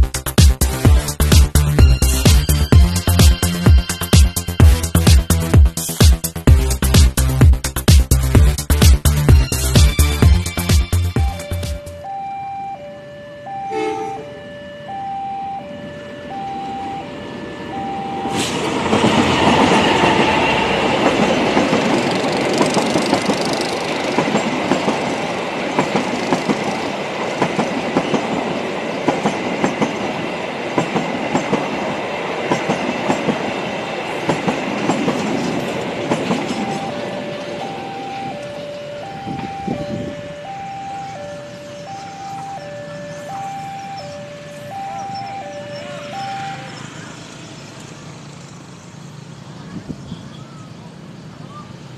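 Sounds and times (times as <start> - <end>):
level-crossing alarm ding-dong: 10.2 - 18.6, 36.3 - 47.2
train wheels clattering over rails: 18.2 - 37.6.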